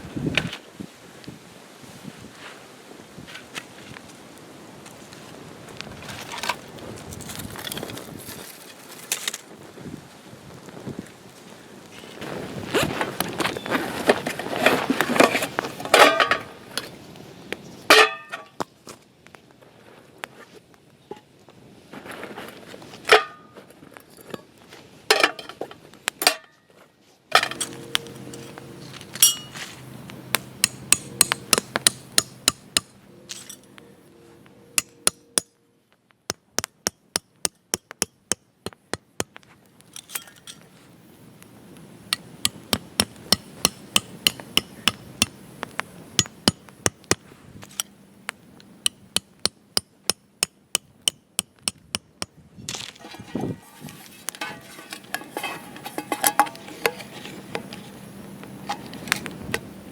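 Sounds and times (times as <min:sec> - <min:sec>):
hammer blows on metal stakes: 0:30.3 - 0:33.6, 0:42.1 - 0:45.4.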